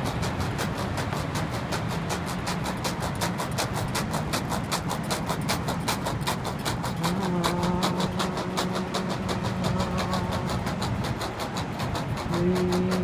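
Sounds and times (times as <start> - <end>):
fast even rattle: 0.0 - 13.0
low drone: 5.5 - 13.0
held low tone: 7.0 - 10.8, 12.3 - 13.0.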